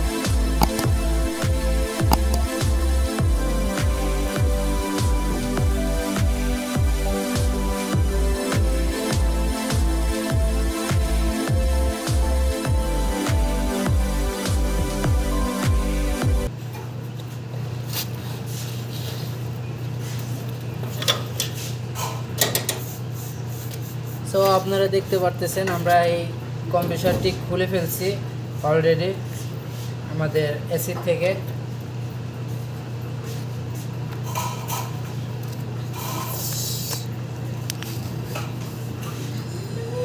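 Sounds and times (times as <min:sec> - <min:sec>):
steady low hum: 0:00.0 - 0:16.5
sharp metallic clicks: 0:00.6 - 0:00.9.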